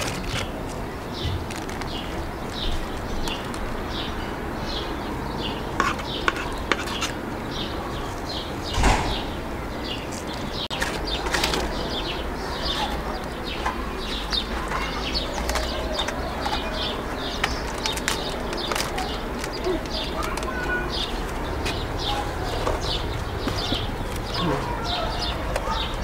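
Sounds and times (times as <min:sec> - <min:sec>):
small birds chirping: 0:00.0 - 0:26.0
thump: 0:08.8 - 0:09.4.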